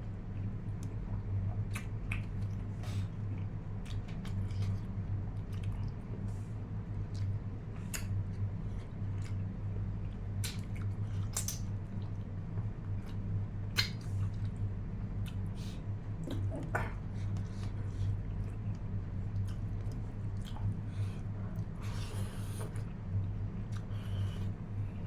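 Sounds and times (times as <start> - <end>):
steady low hum: 0.0 - 25.0
person chewing food: 7.0 - 15.5, 16.2 - 25.0.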